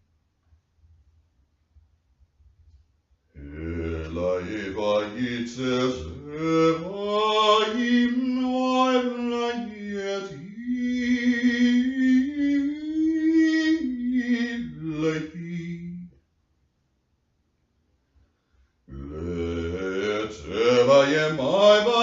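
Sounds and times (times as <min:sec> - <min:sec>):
man chanting: 0:03.4 - 0:16.1, 0:18.9 - 0:22.0.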